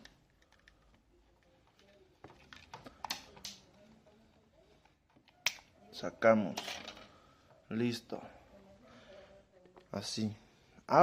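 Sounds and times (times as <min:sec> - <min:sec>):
plastic parts clicking and tapping: 0:01.6 - 0:03.7.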